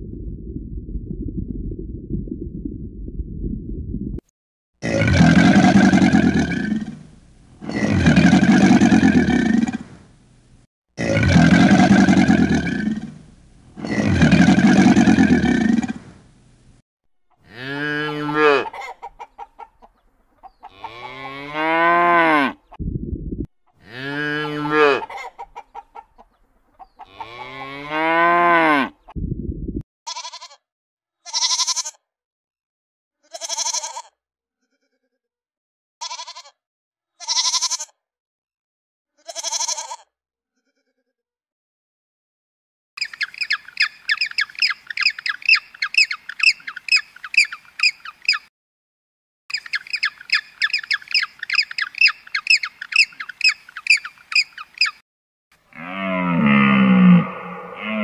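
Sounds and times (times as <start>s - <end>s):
cow mooing: 17.4s - 18.7s, 20.6s - 22.6s, 23.8s - 25.1s, 27.0s - 29.0s, 55.7s - 58.0s
sheep or goat bleating: 17.4s - 18.8s, 20.6s - 21.6s, 27.0s - 27.9s, 30.1s - 30.6s, 31.2s - 32.0s, 33.2s - 35.2s, 36.0s - 36.6s, 37.2s - 38.0s, 39.2s - 41.1s
rapid high chirping: 43.0s - 48.4s, 49.5s - 55.0s.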